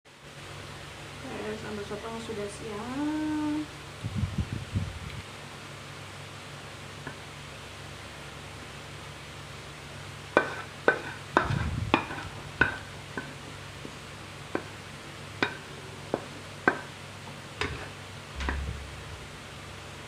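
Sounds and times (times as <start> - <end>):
low thump: 18.4 - 19.3.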